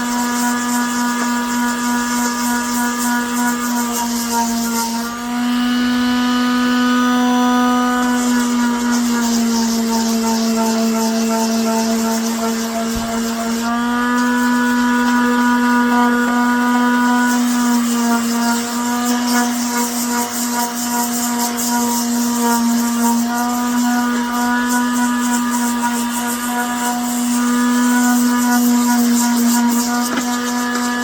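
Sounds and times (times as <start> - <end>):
electric palm sander running: 0.0 - 31.0.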